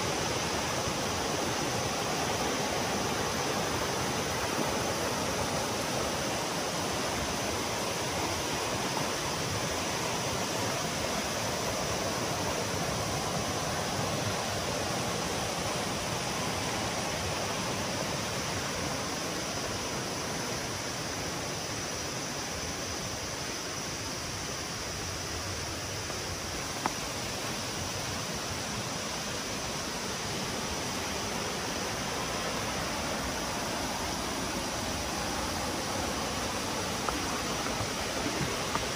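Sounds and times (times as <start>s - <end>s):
waterfall rushing: 0.0s - 38.9s
faint click: 26.8s - 27.0s.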